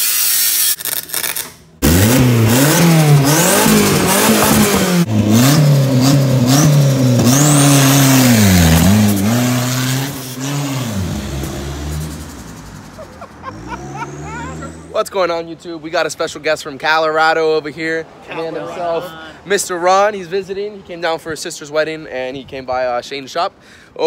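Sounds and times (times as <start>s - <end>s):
buggy engine revving: 1.8s - 15.0s.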